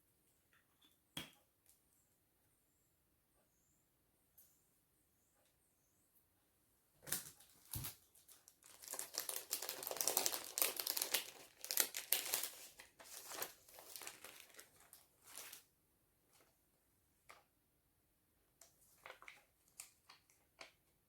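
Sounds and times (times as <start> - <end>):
craft materials crinkling: 7.1 - 15.6.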